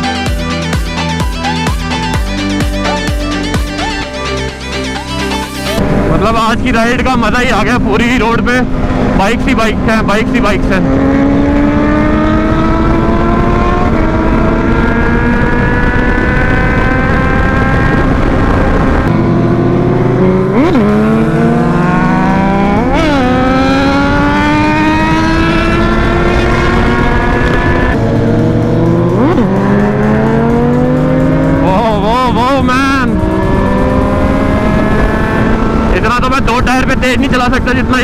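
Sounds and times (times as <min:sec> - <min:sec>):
motorcycle engines: 0:00.0 - 0:38.0
wind rumble: 0:05.7 - 0:38.0
motorcycle engine revs: 0:08.6 - 0:36.2.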